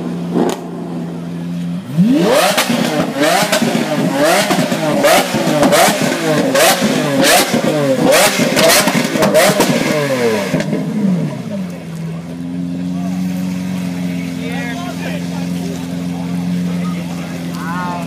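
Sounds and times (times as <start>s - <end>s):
exhaust cracks: 0.0s - 18.0s
car engine revving hard: 1.8s - 11.6s.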